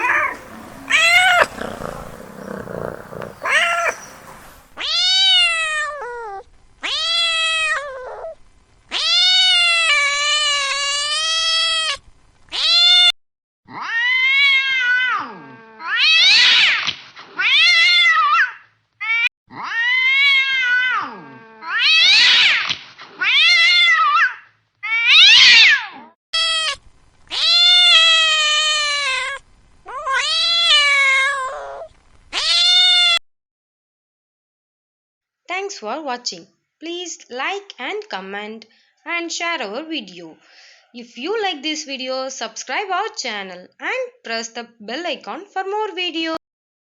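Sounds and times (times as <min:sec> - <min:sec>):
cat yowling: 0:00.0 - 0:12.0, 0:12.6 - 0:13.1, 0:13.7 - 0:16.8, 0:17.4 - 0:22.6, 0:23.2 - 0:33.2.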